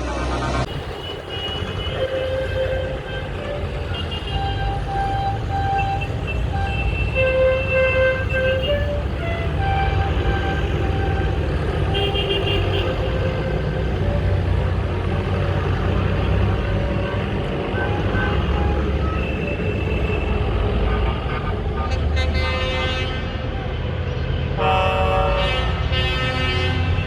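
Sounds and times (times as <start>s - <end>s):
tractor engines rumbling: 0.0s - 27.0s
horns tooting: 0.6s - 27.0s.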